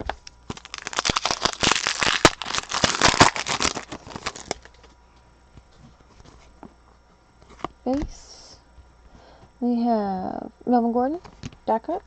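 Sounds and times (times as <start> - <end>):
trading card packaging crinkling: 0.0 - 5.0.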